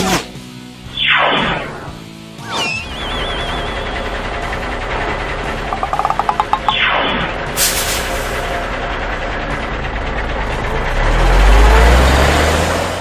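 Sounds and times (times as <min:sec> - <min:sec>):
cartoon truck engine: 0:02.8 - 0:13.0.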